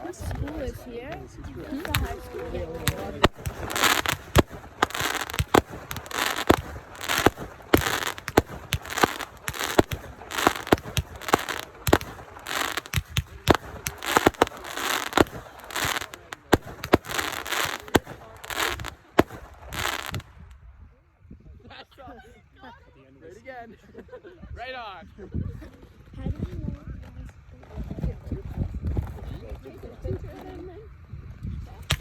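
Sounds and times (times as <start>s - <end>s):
fireworks bangs and crackling: 1.4s - 20.4s.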